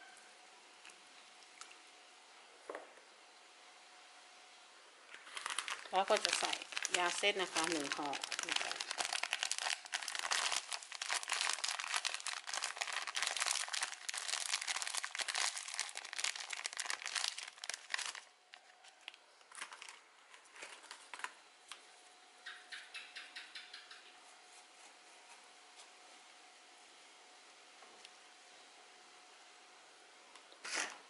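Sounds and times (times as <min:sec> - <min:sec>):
tobacco packet crinkling: 0:05.1 - 0:21.4.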